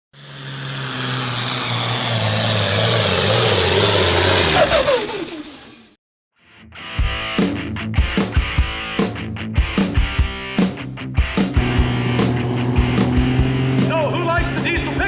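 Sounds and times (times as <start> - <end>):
diesel truck engine revving: 0.1 - 6.0, 11.4 - 15.0.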